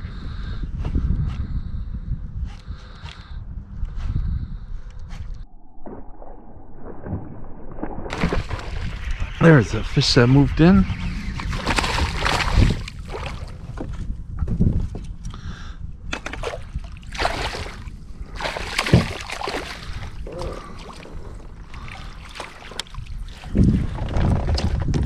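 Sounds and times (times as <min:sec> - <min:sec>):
low rumble: 0:01.6 - 0:18.5
water sloshing and splashing: 0:05.8 - 0:09.1, 0:11.4 - 0:14.0, 0:16.1 - 0:24.2.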